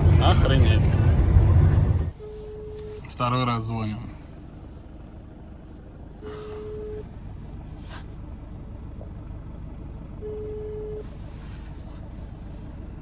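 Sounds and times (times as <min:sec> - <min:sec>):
low vehicle cabin rumble: 0:00.0 - 0:13.0
telephone ringback beeps: 0:02.2 - 0:02.9, 0:06.6 - 0:07.0, 0:10.2 - 0:11.0.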